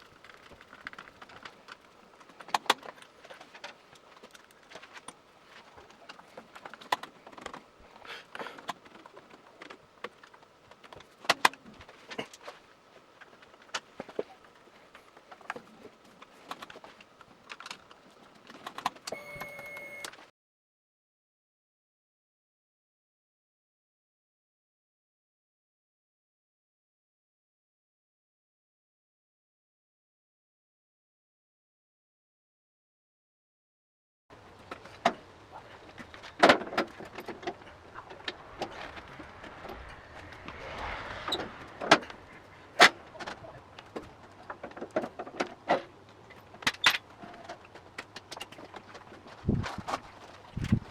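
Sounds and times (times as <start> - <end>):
electrical hum: 34.3 - 50.9
soft rushing sound: 37.1 - 44.2.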